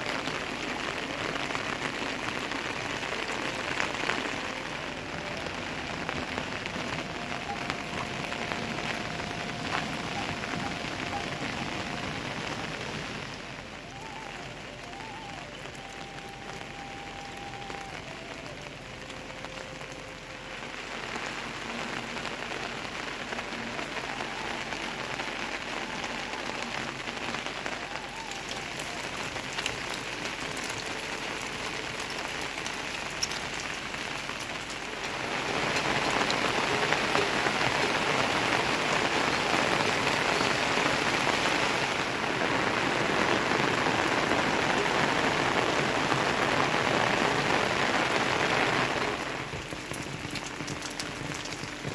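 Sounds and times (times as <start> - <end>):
steady rain falling: 0.0 - 51.9.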